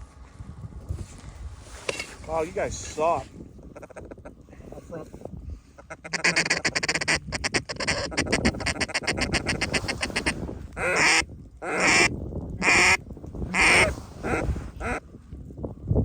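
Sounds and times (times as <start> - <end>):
duck call rattling chuckle: 3.8 - 4.3, 5.8 - 15.0
duck call loud quacks: 5.8 - 15.0.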